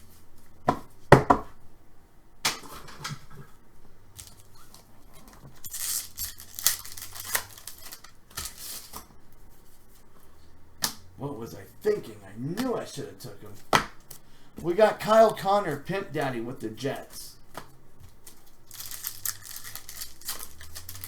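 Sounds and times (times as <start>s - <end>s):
foil wrapper tearing: 5.6s - 8.9s, 18.2s - 21.0s
cards knocking: 12.5s - 12.9s, 13.5s - 18.4s.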